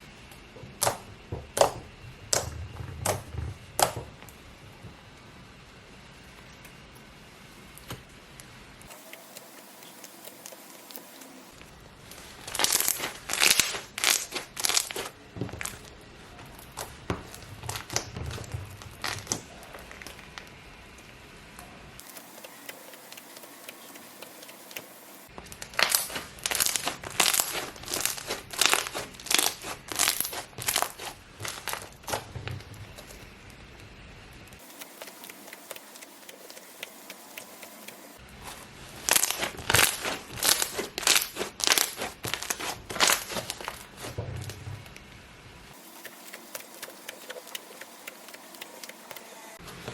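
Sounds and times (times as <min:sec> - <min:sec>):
slime crackling: 0:00.7 - 0:04.9, 0:11.6 - 0:20.6, 0:24.7 - 0:36.9, 0:38.2 - 0:45.1.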